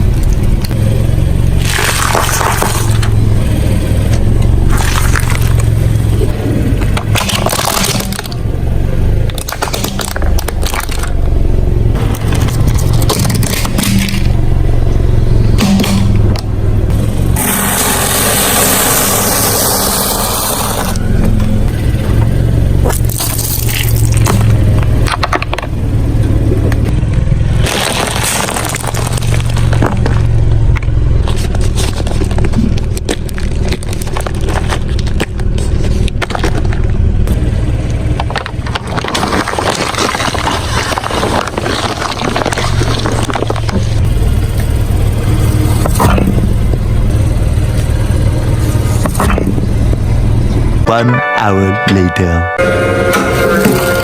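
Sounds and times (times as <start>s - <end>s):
objects crunching under tyres: 0.0s - 50.8s
car engine running: 0.0s - 54.0s
loud harsh rushing noise: 17.2s - 21.0s.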